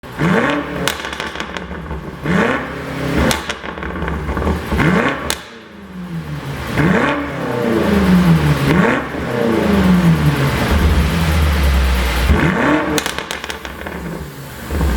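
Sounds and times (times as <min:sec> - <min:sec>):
car engine revving: 0:00.0 - 0:14.9
exhaust pops and crackles: 0:00.3 - 0:05.6, 0:10.5 - 0:14.9.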